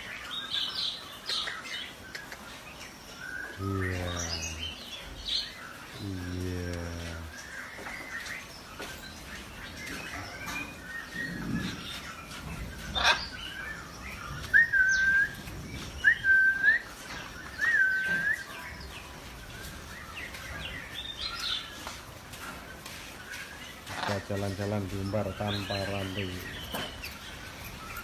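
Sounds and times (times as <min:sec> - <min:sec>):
birds chirping: 0:00.0 - 0:28.0
loud whistled notes: 0:16.0 - 0:16.9.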